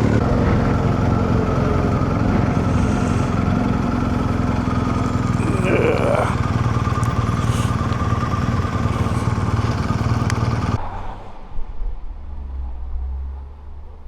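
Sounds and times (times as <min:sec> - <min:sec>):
motorcycle engine running: 0:00.0 - 0:10.8
low hum: 0:00.0 - 0:14.0.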